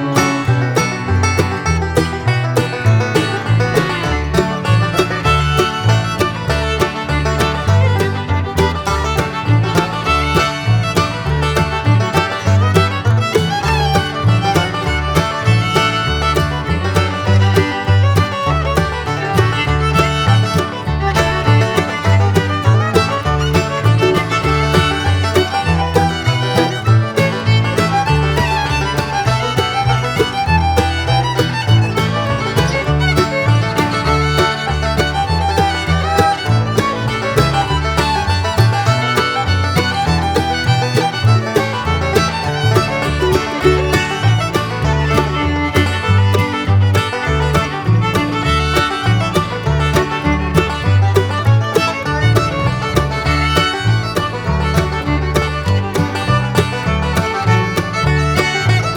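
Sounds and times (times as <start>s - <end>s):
banjo: 0.0s - 58.9s
fiddle: 0.0s - 58.9s
guitar: 0.0s - 58.9s.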